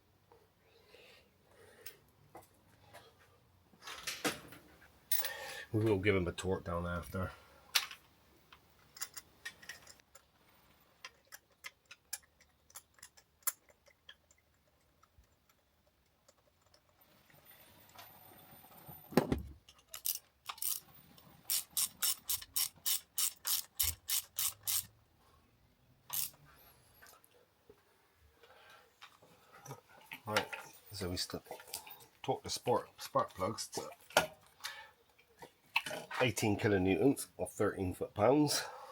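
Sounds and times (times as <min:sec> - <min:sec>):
ratchet wrench clicking: 0:19.9 - 0:20.8, 0:21.5 - 0:24.9, 0:26.1 - 0:26.4.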